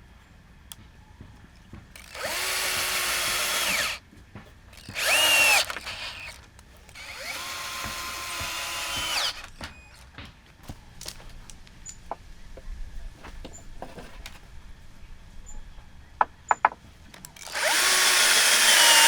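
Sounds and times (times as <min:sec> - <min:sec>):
power drill motor whine: 0:02.0 - 0:04.0, 0:04.8 - 0:10.0, 0:17.4 - 0:19.0.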